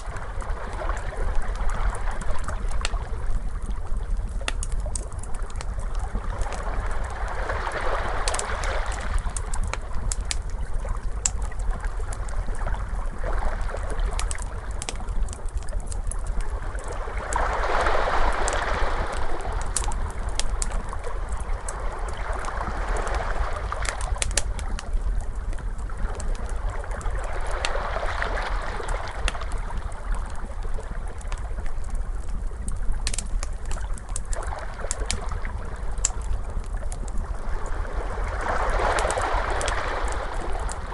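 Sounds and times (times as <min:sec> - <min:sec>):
fire crackling and popping: 0:00.0 - 0:40.9
ocean waves washing: 0:16.9 - 0:24.4, 0:37.3 - 0:40.9.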